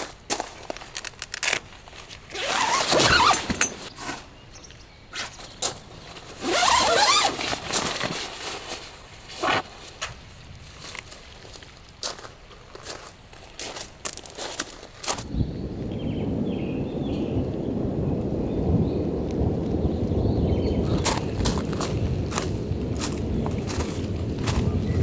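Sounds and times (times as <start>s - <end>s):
rustling and scraping: 0.0s - 4.4s, 5.2s - 11.6s.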